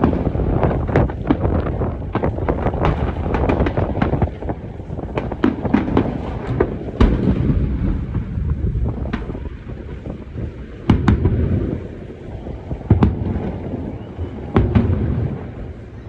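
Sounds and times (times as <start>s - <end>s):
fireworks bangs: 0.0s - 16.0s
low rumble of explosions: 0.0s - 16.0s.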